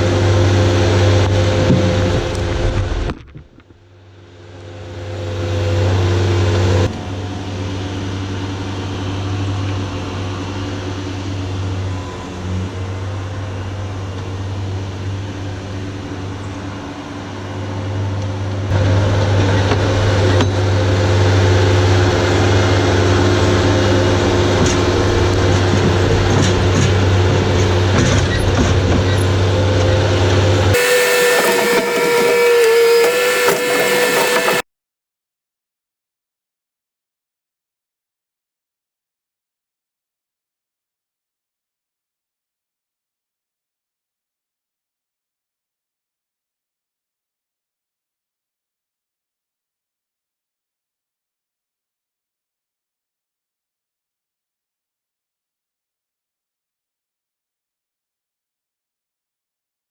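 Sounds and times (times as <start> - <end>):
engine droning under load: 3.9 - 34.6
high wavering whine: 30.8 - 34.6.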